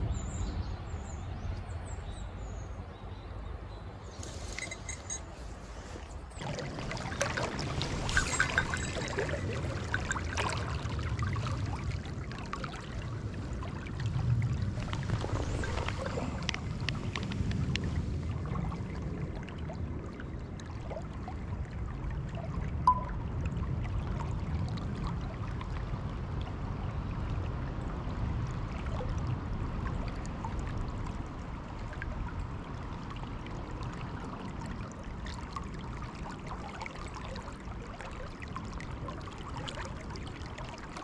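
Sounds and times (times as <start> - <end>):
river water flowing: 0.0 - 18.6.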